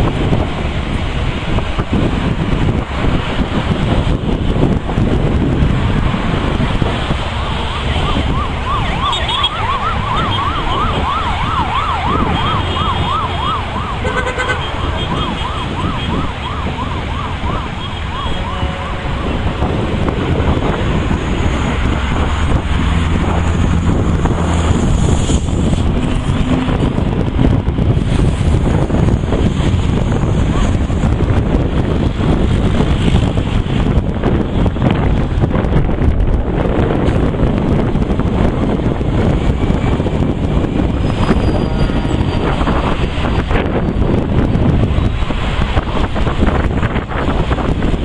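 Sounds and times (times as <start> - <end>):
low wind rumble: 0.0 - 48.0
siren yelping: 7.2 - 19.7.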